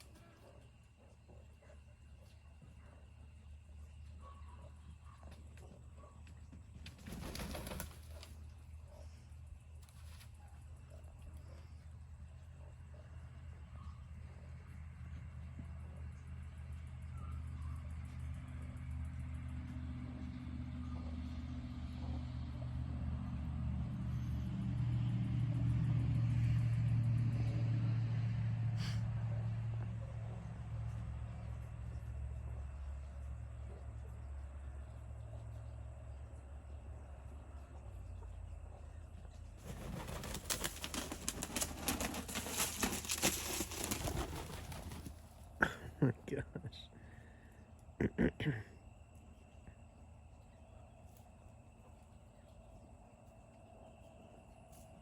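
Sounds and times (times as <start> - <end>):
wings flapping and branches rustling: 6.7 - 8.6, 39.6 - 45.6.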